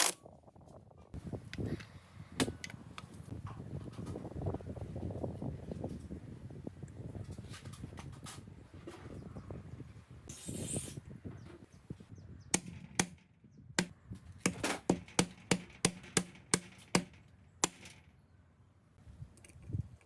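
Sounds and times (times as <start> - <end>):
sharp knocks: 12.6 - 18.1.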